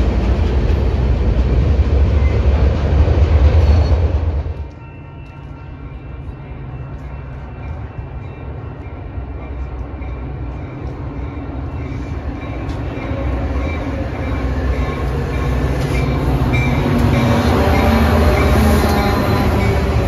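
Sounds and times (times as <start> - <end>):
train approaching on tracks: 0.0 - 20.0.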